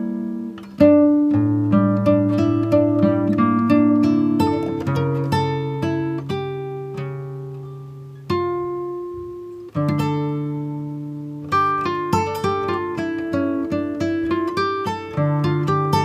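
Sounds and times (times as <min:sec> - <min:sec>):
slow acoustic guitar: 0:00.0 - 0:16.0.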